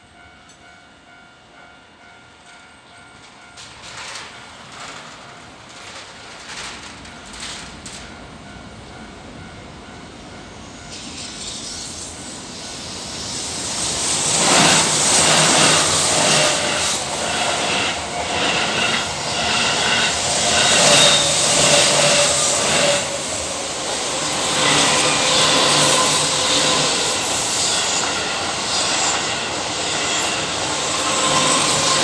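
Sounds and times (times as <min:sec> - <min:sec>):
level crossing warning bell: 0:00.0 - 0:05.9
electric train rumbling past: 0:00.0 - 0:32.0
wheel clatter over rail joints: 0:03.6 - 0:08.1.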